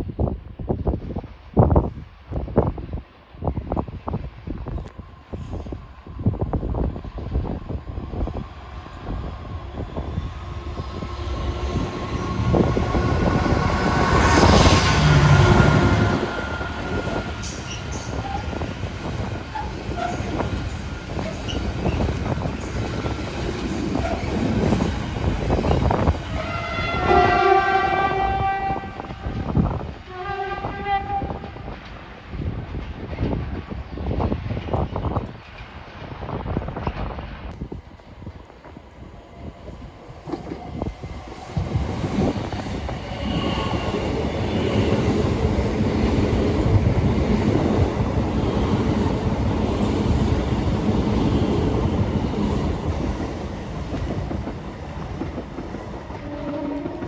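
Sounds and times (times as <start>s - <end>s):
train rail rumble: 0.0s - 57.0s
train horn: 11.7s - 18.6s, 26.3s - 31.6s, 56.1s - 57.0s.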